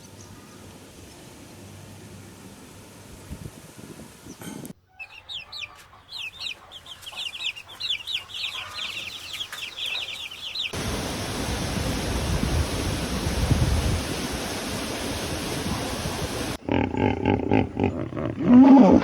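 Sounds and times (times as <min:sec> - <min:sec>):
steady rushing noise: 0:10.7 - 0:16.6.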